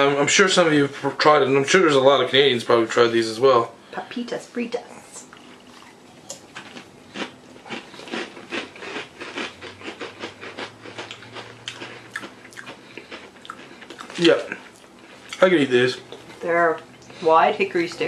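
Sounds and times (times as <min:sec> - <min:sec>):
chewing crisp potato sticks: 0:05.2 - 0:17.2.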